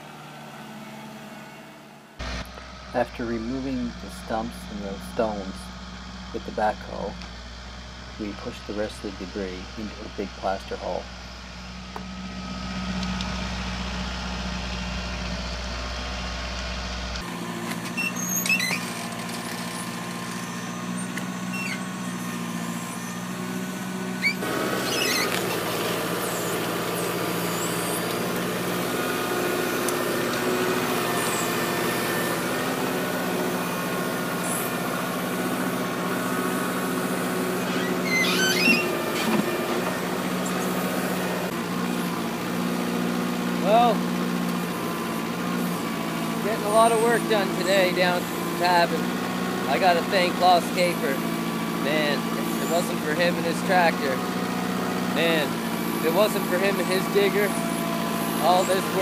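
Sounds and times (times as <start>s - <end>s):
tractor diesel engine running: 0.0s - 59.0s
backhoe squeaks and clanks: 17.2s - 42.8s, 44.4s - 59.0s.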